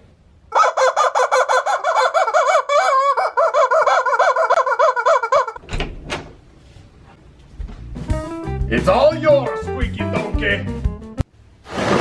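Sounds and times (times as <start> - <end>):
toy chicken clucking: 0.5 - 5.6.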